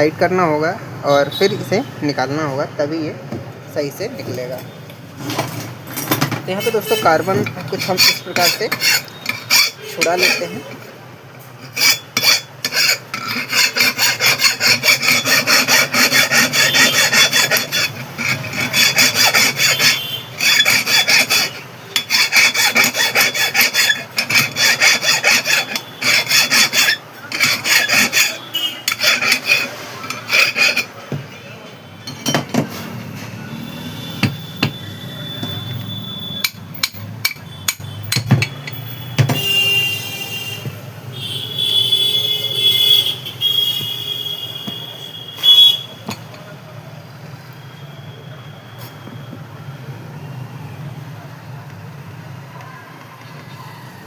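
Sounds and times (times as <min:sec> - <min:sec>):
tool scraping metal: 0:04.3 - 0:31.2, 0:31.9 - 0:46.5
short high squeak: 0:33.6 - 0:36.6, 0:47.6 - 0:49.3.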